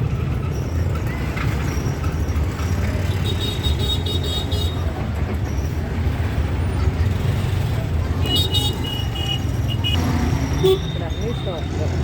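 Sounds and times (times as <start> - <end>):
auto-rickshaw engine: 0.0 - 12.0
road rumble: 0.0 - 12.0
traffic: 0.0 - 12.0
vehicle horn short beeps: 10.6 - 11.2.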